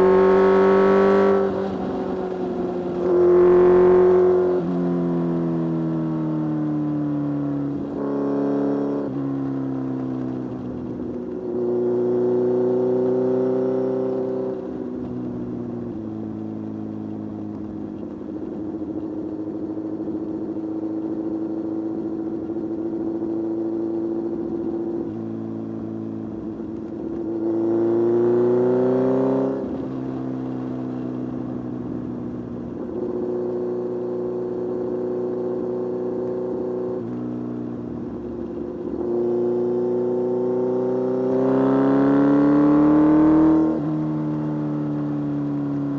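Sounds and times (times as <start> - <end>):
motorcycle engine revving: 0.0 - 6.0, 26.4 - 45.9.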